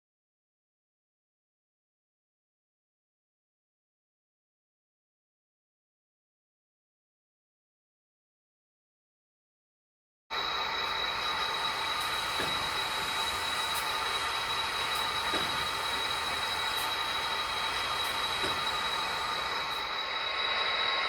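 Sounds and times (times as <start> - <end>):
model train hiss and whine: 10.3 - 21.0.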